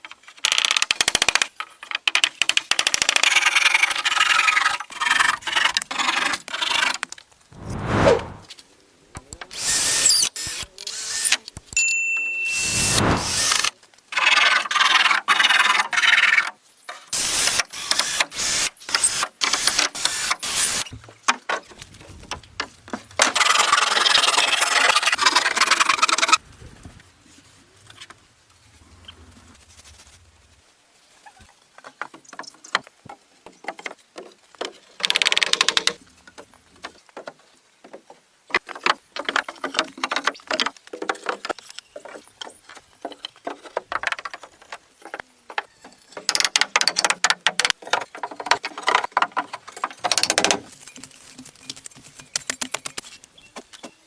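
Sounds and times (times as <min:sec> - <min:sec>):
wood scraping and rasping: 0:03.3 - 0:07.0.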